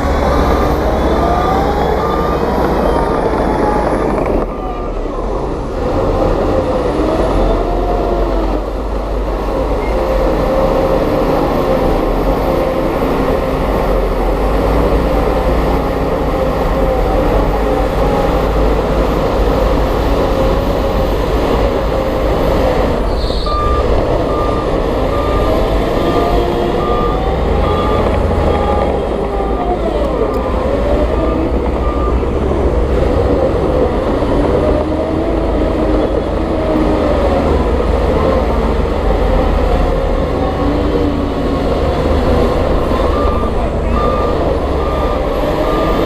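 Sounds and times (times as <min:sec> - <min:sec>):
reversing alarm beeping: 0:00.0 - 0:05.1, 0:21.6 - 0:33.8, 0:41.6 - 0:46.0
diesel engine running: 0:00.0 - 0:46.0.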